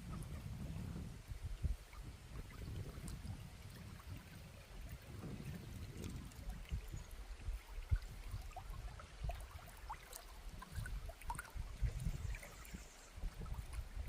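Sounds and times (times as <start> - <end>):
river water gurgling: 0.0 - 14.0.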